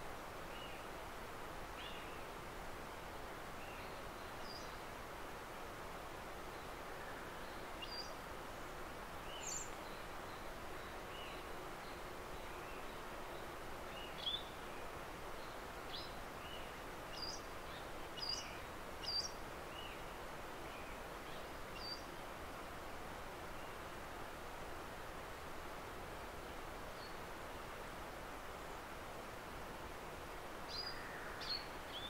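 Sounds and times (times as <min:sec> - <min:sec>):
forest ambience hiss: 0:00.0 - 0:32.0
small birds chirping: 0:15.4 - 0:20.1, 0:20.7 - 0:22.1, 0:30.7 - 0:32.0.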